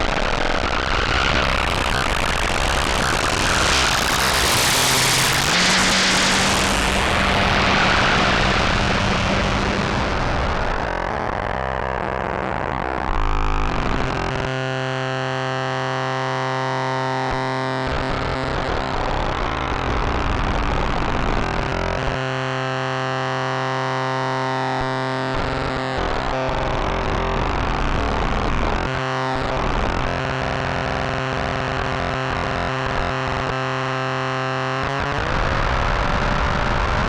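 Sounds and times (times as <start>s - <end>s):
synthesizer drone: 0.0s - 20.0s.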